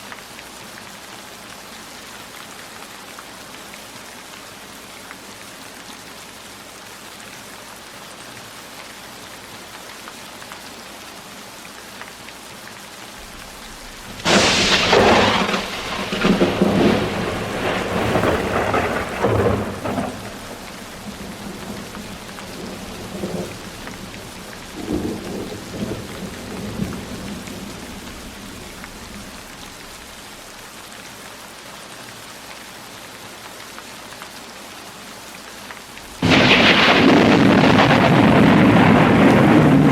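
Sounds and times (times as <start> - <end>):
heavy rain falling: 0.0 - 39.9
thunderclap rumbling: 13.2 - 30.5, 36.0 - 39.9.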